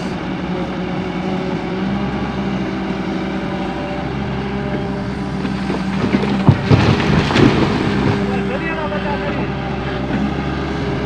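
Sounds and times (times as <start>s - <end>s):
excavator diesel engine running: 0.0s - 11.0s
sharp knocks: 5.7s - 8.3s.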